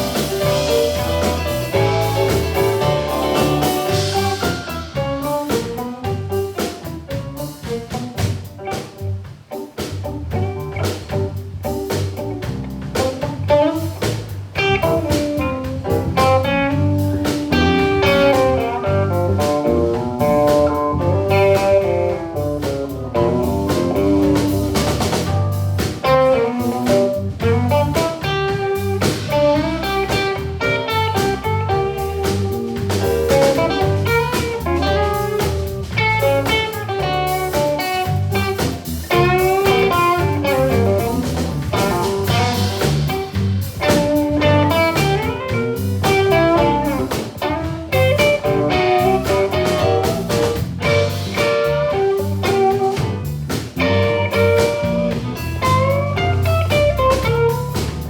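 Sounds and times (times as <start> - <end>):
blues band playing: 0.0 - 58.0.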